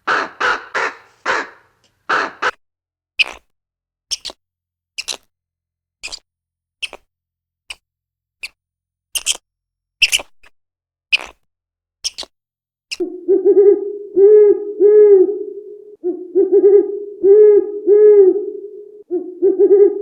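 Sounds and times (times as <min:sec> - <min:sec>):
bird hooting call: 0:00.0 - 0:02.5, 0:13.0 - 0:20.0
steady hum: 0:13.1 - 0:17.8.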